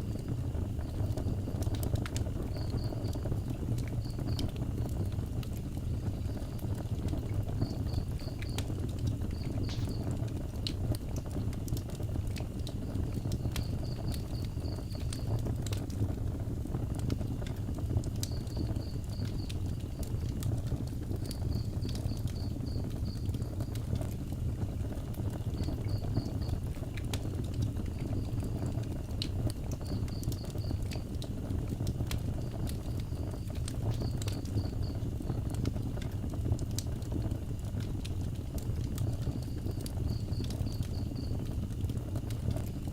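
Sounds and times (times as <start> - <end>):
fire low rumble: 0.0 - 42.9
wood fire crackling: 0.0 - 42.9
insect chirping: 0.2 - 4.5, 7.5 - 10.2, 12.8 - 15.4, 18.3 - 20.1, 21.3 - 23.7, 25.6 - 26.6, 29.8 - 30.9, 32.3 - 35.4, 39.2 - 41.4.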